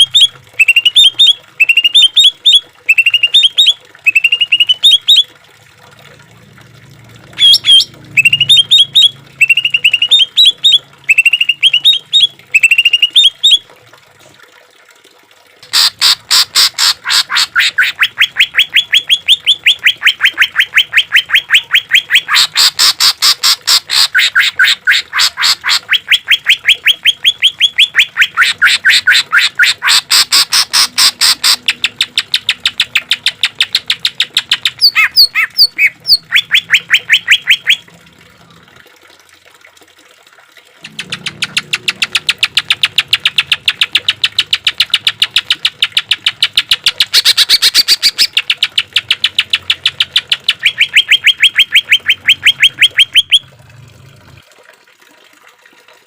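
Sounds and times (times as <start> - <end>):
bird chirping phrases: 0.0 - 5.2, 7.4 - 13.6, 23.7 - 37.8, 40.8 - 53.4.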